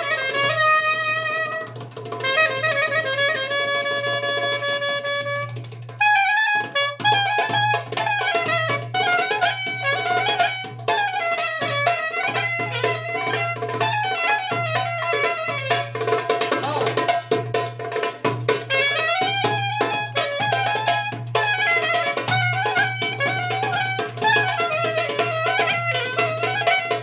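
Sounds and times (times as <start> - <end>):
wind instrument melody: 0.0 - 27.0
drums: 6.9 - 27.0.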